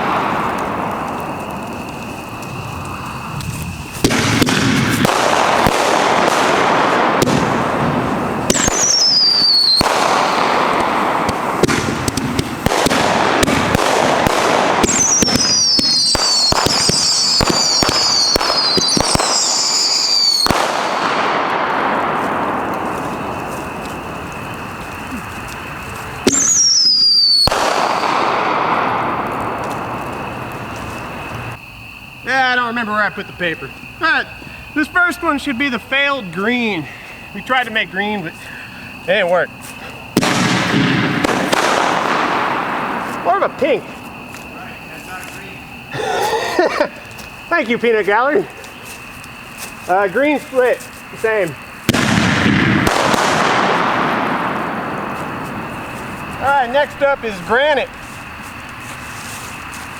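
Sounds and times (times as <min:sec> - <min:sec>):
firework hissing rushes: 0:00.0 - 0:31.6, 0:36.4 - 0:59.9
firework pops and crackles: 0:00.0 - 0:31.6, 0:37.4 - 0:59.9
falling firework whistles: 0:00.0 - 0:32.1, 0:33.4 - 0:59.9.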